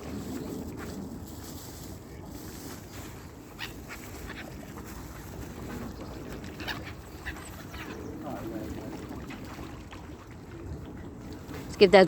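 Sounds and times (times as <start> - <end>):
waterfowl calling: 3.0 - 10.2.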